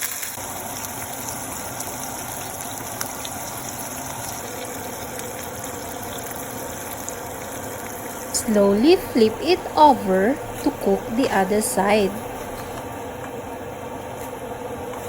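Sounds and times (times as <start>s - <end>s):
omelette sizzling in oil: 0.0s - 8.4s.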